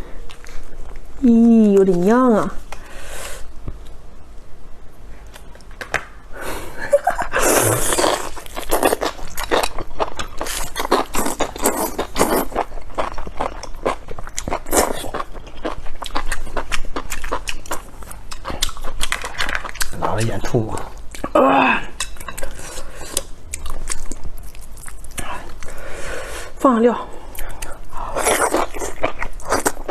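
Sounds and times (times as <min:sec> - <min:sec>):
biting and chewing mushrooms: 0:07.5 - 0:21.4.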